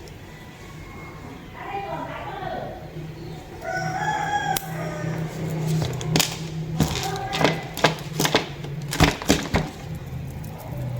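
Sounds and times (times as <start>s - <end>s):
steady low hum: 0.0s - 10.9s
clicks and taps of handling packaging: 5.8s - 10.0s.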